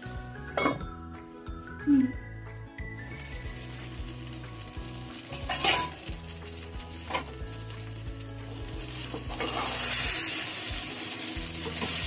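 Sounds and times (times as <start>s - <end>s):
vegetables sizzling in oil: 2.9s - 12.0s.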